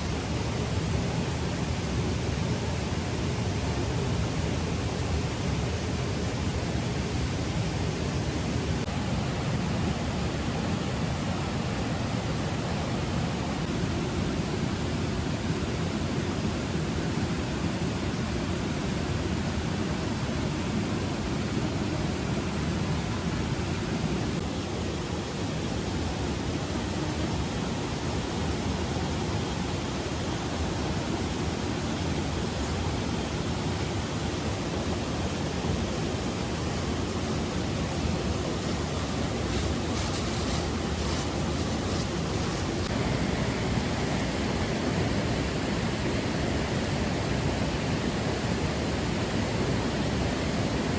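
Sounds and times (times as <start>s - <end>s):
rushing water: 18.8s - 50.9s.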